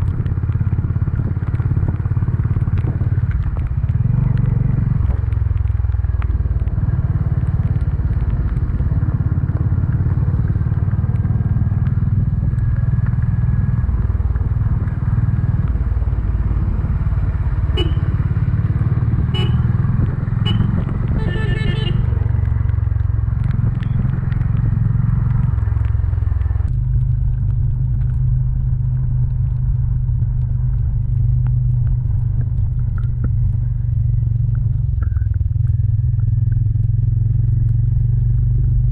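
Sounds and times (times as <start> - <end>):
motorcycle engine thrumming: 17.8 - 18.3.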